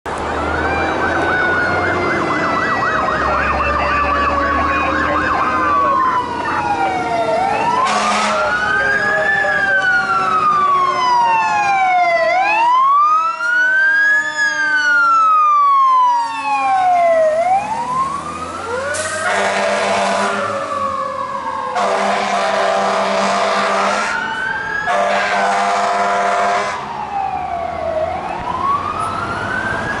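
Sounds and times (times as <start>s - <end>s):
fire engine siren: 0.1s - 30.0s
long horn blasts: 7.8s - 8.6s, 18.9s - 20.6s, 21.8s - 24.2s, 24.9s - 26.8s.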